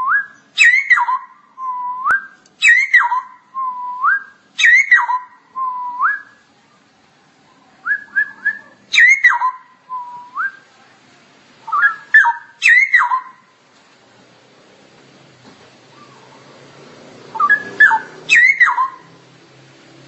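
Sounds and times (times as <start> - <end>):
bird singing whistled phrases: 0.0 - 6.4, 7.8 - 10.6, 11.6 - 13.4, 17.3 - 19.1.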